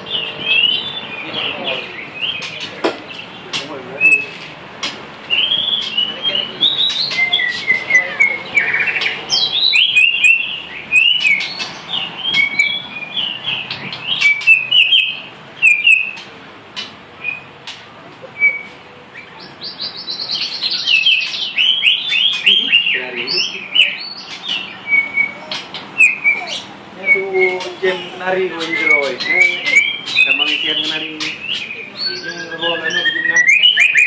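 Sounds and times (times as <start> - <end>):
songbird whistling and chirping: 0.0 - 3.3, 3.9 - 4.5, 5.2 - 16.3, 17.2 - 34.0.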